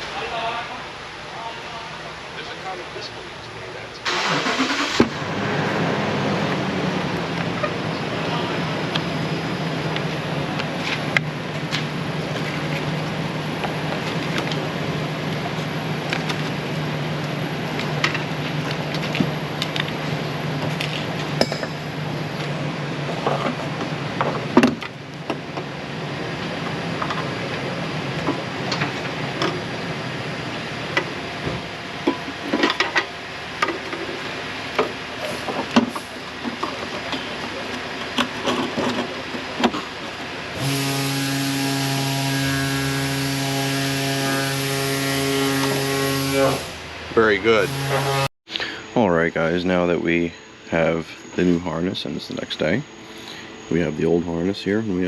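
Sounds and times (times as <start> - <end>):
steady shop hum: 0.0 - 55.0
hand tools clinking on metal: 21.4 - 21.8.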